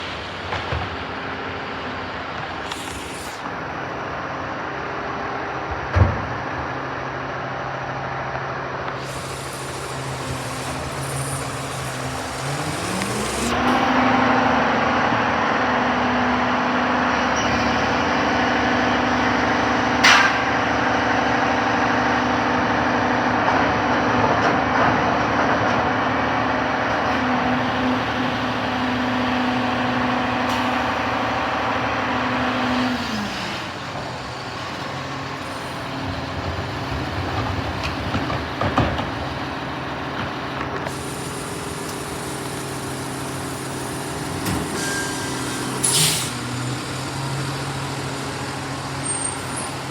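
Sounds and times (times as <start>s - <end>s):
garbage truck engine running: 0.0s - 49.9s
hydraulic lift: 0.0s - 49.9s
sharp metal bang: 20.0s - 20.6s.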